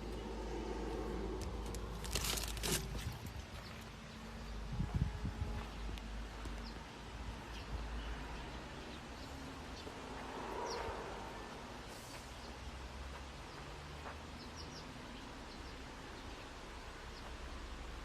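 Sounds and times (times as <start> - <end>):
low steady rumble: 0.0 - 8.6.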